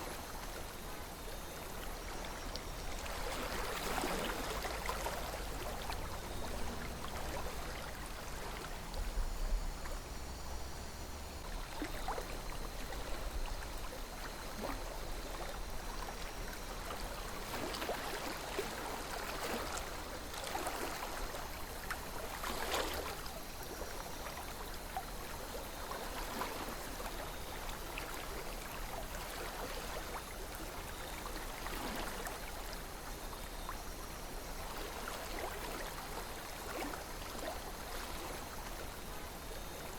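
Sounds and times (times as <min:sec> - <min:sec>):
river water flowing: 0:00.0 - 0:39.9
water gurgles and splashes: 0:00.0 - 0:39.9.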